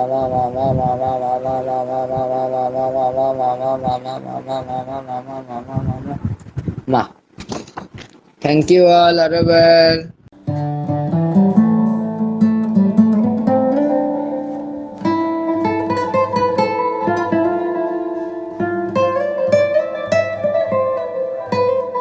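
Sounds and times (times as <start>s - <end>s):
acoustic guitar melody: 0.0s - 5.6s, 10.3s - 22.0s.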